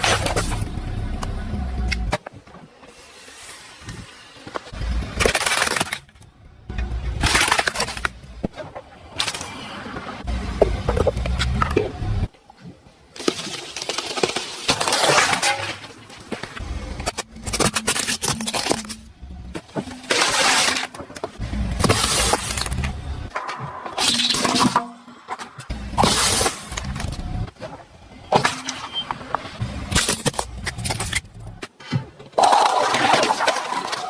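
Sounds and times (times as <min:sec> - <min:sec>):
objects crushed under tyres: 0:00.0 - 0:00.9, 0:04.4 - 0:09.6, 0:13.1 - 0:34.0.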